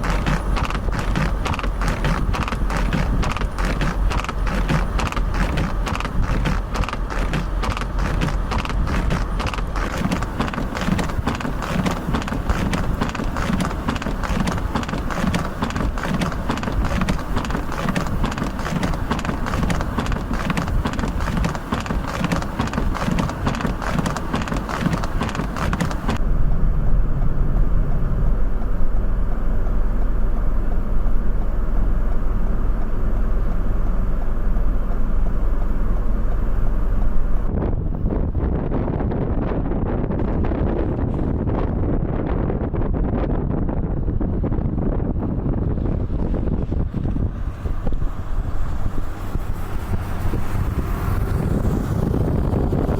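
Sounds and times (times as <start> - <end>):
vehicle clattering in snow: 0.0 - 26.3
wind buffeting microphone: 0.0 - 31.4, 37.1 - 52.9
low rumble: 26.1 - 52.9.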